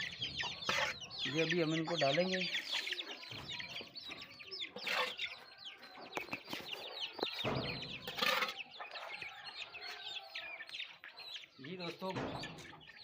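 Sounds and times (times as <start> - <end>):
chickens clucking: 0.0 - 13.0
chicks peeping: 0.0 - 13.0.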